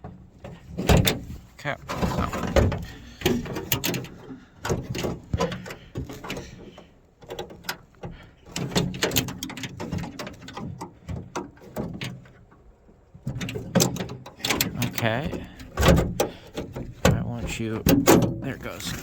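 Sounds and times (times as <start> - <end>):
car door lock clicks and rattles: 13.3 - 18.5.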